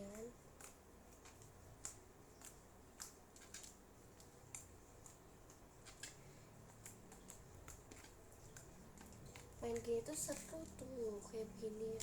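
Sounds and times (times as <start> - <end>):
sticky slime clicks and crackles: 0.0 - 12.0.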